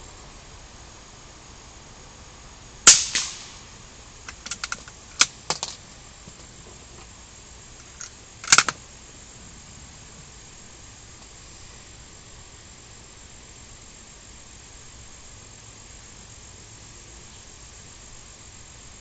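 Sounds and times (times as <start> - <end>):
rifle shot with echo: 2.9 - 3.7
rifle action clicking: 4.3 - 5.7, 7.8 - 8.8.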